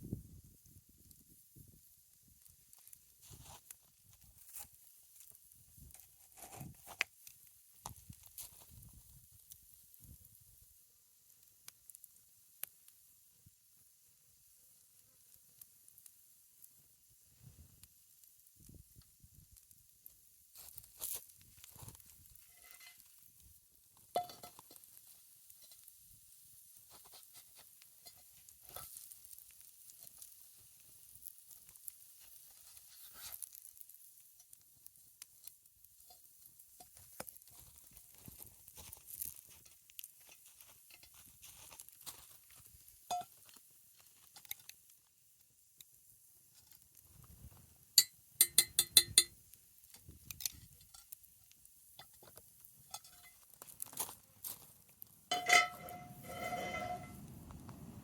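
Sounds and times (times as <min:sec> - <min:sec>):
campfire crackles and pops: 0:00.0 - 0:58.0
pancakes sizzling in a skillet: 0:00.0 - 0:58.0
sharp metal clinks: 0:48.0 - 0:49.3.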